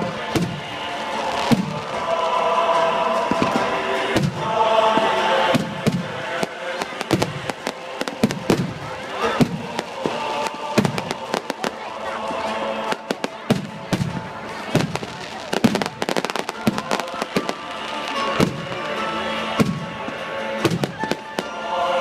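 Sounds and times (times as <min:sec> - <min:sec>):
fireworks bangs and pops: 0:00.0 - 0:02.1, 0:02.7 - 0:11.9, 0:12.9 - 0:21.6.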